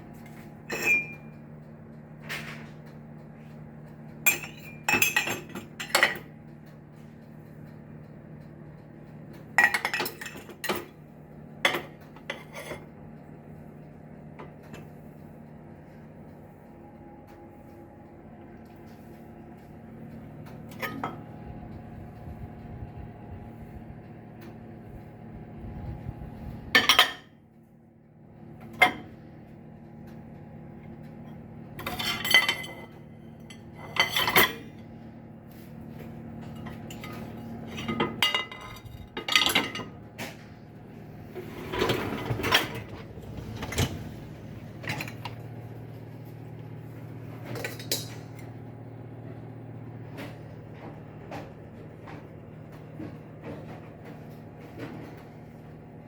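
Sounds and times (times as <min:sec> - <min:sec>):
steady hum: 0:00.0 - 0:56.0
dishes and cutlery clattering: 0:00.7 - 0:01.3, 0:04.3 - 0:06.3, 0:09.6 - 0:10.9, 0:31.8 - 0:34.7, 0:36.5 - 0:40.0.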